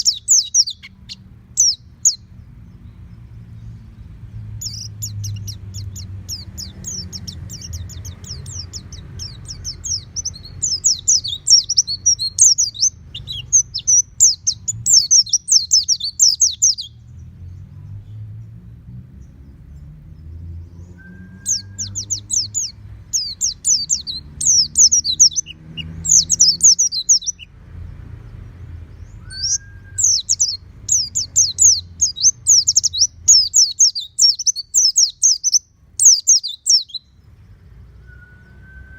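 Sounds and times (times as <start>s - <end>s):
bird twittering: 0.0s - 2.3s, 4.6s - 17.0s, 20.8s - 27.5s, 29.0s - 37.1s.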